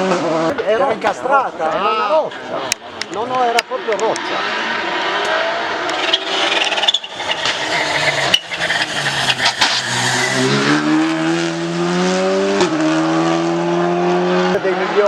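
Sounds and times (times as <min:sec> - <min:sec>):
rally car engine accelerating: 0:00.0 - 0:00.7, 0:03.4 - 0:15.0
tyre noise: 0:01.8 - 0:12.8
sharp clicks: 0:05.2 - 0:07.6.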